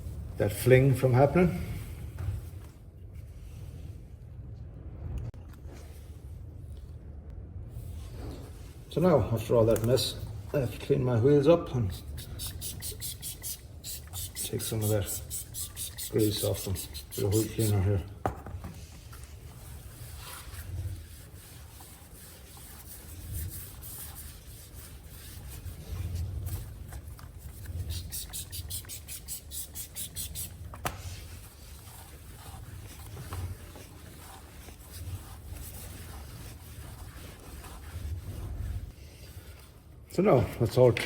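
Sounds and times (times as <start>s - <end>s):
cloth rubbing and wiping: 11.7s - 39.9s.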